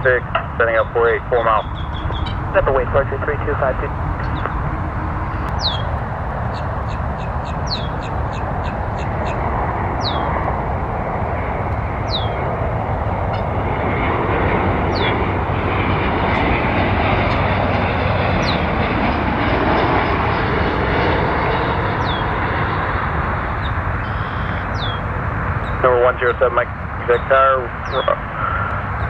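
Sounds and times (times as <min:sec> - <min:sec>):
aircraft engine rushing: 0:00.0 - 0:29.0
high downward-sliding chirp: 0:04.0 - 0:10.4.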